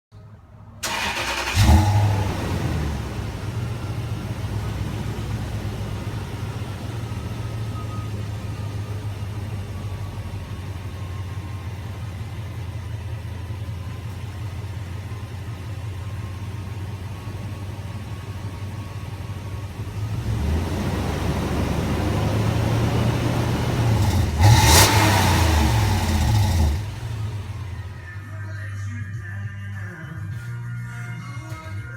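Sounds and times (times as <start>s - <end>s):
engine cranking: 0.8s - 11.3s, 20.2s - 28.1s
engine revving and idling: 0.8s - 28.3s.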